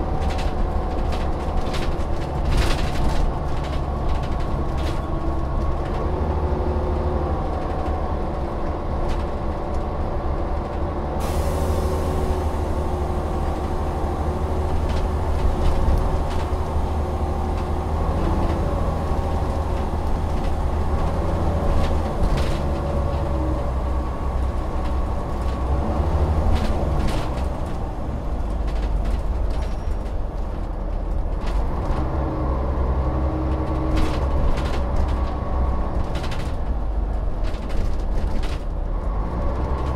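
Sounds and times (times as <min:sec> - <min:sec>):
bus engine running: 0:00.0 - 0:39.9
rattles and clicks from bus body: 0:00.0 - 0:39.9
air hiss: 0:11.2 - 0:12.8.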